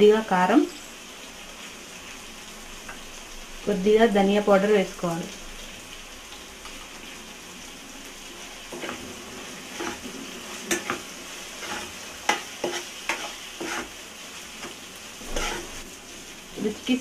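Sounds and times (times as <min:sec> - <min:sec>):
prawns sizzling in hot oil: 0:00.0 - 0:17.0
spatula scraping and stirring: 0:08.4 - 0:16.8.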